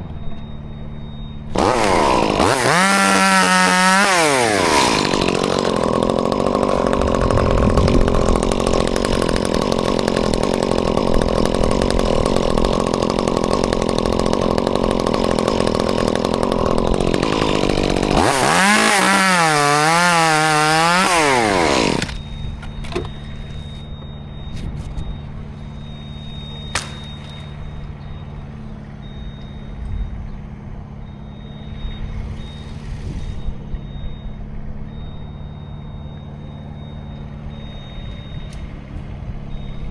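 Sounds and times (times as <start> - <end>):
chainsaw revving: 1.5 - 23.9, 25.4 - 28.7.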